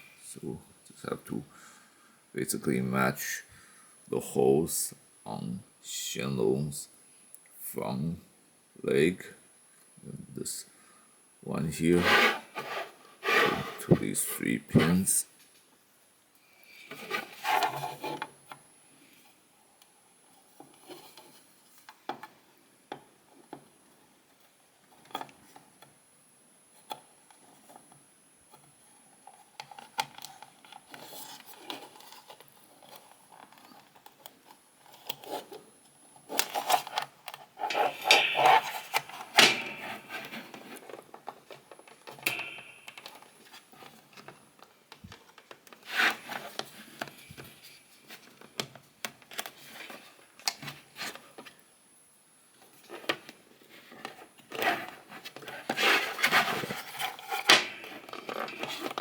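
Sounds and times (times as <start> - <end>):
plastic parts scraping and clicking: 26.8 - 51.6, 52.7 - 59.0.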